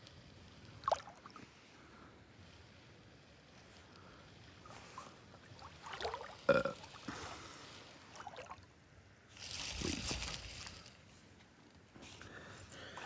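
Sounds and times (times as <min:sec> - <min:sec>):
creek water splashing: 0:09.4 - 0:10.9.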